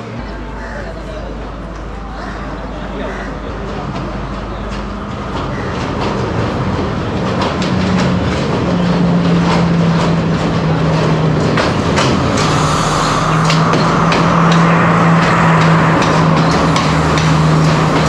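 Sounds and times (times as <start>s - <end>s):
diesel train engine hum: 0.0s - 18.0s
train wheel clicks: 3.7s - 18.0s.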